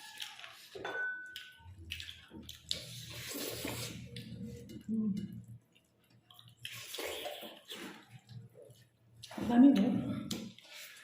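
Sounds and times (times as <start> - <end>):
squelchy chewing: 1.4 - 9.4.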